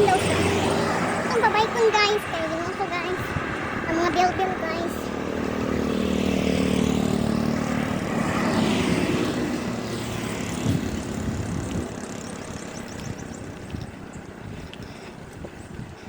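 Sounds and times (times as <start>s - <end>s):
road noise: 0.0s - 16.0s
motorcycle engine running: 4.3s - 16.0s.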